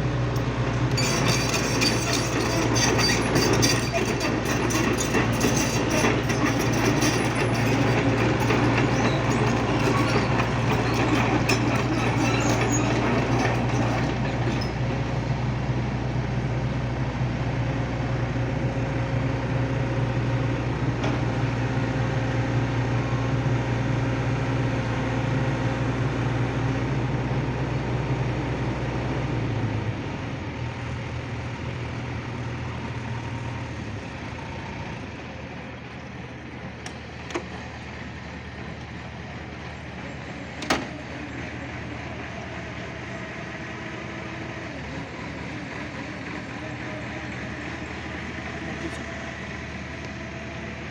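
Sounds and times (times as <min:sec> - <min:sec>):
excavator diesel engine droning: 0:00.0 - 0:18.1, 0:29.2 - 0:50.9.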